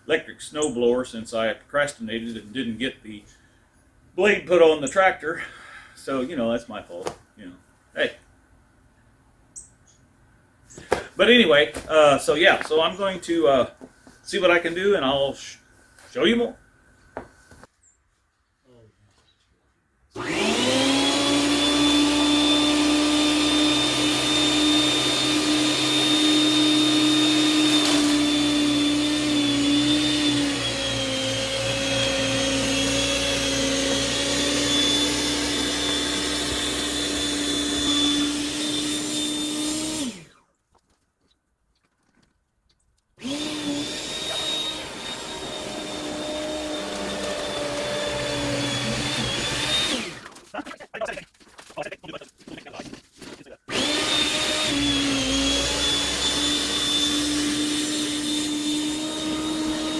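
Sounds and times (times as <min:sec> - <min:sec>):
snowblower motor whine: 0:20.2 - 0:40.3, 0:43.2 - 0:50.3, 0:53.7 - 0:59.9.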